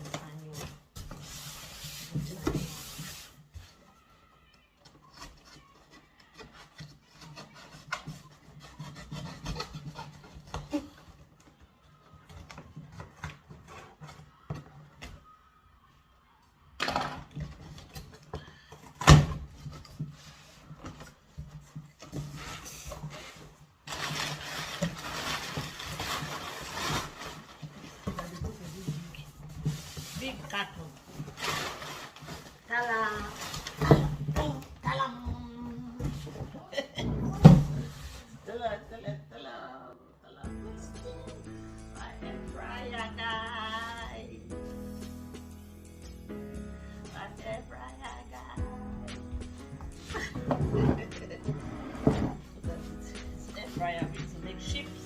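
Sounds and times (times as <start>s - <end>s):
cardboard and packing rustling: 0.0s - 15.6s, 17.2s - 39.2s, 49.3s - 55.0s.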